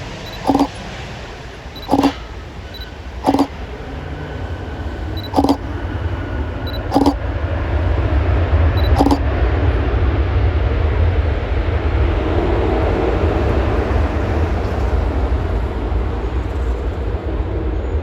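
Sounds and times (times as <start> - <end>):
short sharp clicks: 0.3 - 0.7, 1.8 - 2.2, 3.2 - 3.5, 5.2 - 5.6, 6.7 - 7.2, 8.8 - 9.2.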